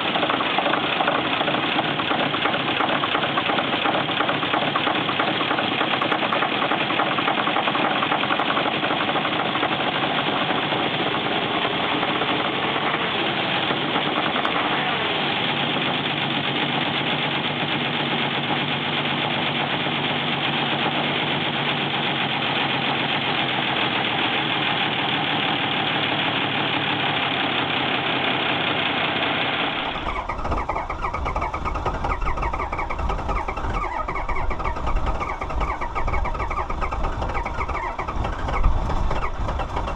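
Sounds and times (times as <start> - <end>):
diesel engine knocking: 0.0 - 39.9
deep engine rumble: 29.8 - 39.9.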